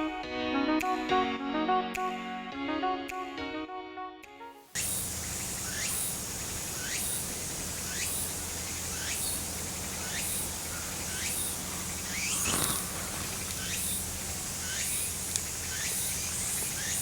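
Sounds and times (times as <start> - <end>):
steady high hiss: 4.8 - 17.0.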